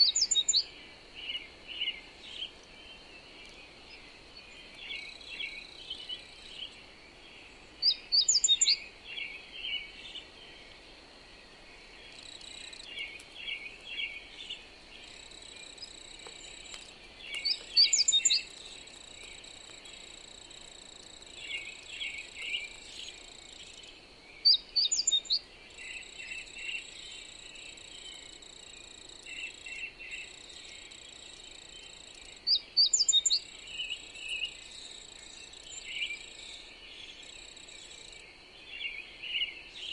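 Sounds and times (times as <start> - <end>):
insect drone: 0.0 - 39.9
soft bird chirps: 0.0 - 39.9.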